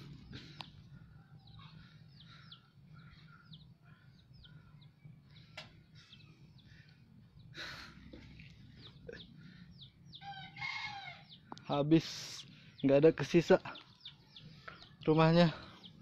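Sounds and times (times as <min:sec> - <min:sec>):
low steady hum: 0:00.0 - 0:11.7
faint birds chirping: 0:00.0 - 0:16.0.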